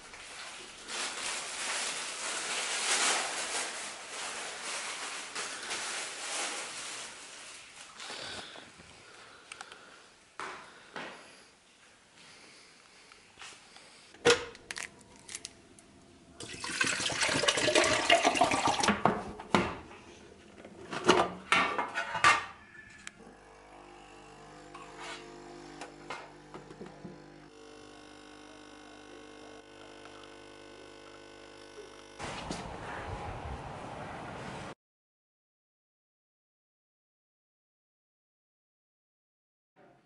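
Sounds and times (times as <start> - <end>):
steady hum with held tones: 23.1 - 32.2.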